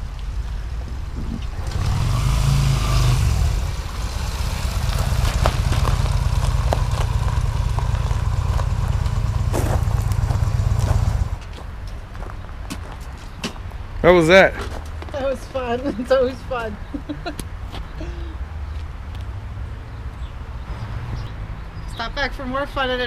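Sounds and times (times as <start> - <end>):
motorcycle engine running: 1.5 - 11.4.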